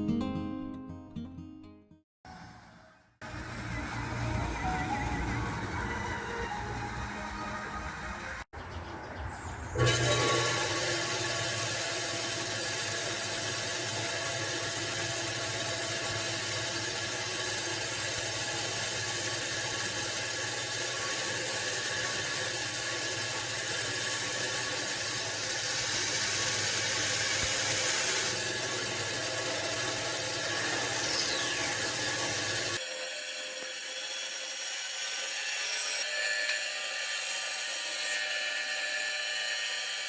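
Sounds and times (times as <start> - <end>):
power tool working wood: 9.8 - 40.0.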